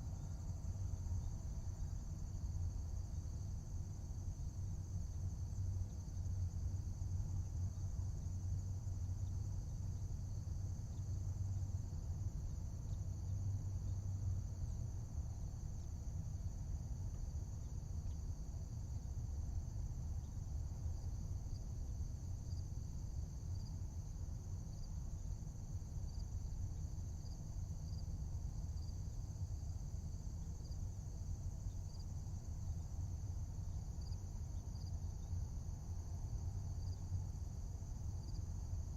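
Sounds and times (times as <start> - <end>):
crickets and insects chorus: 0.0 - 38.9.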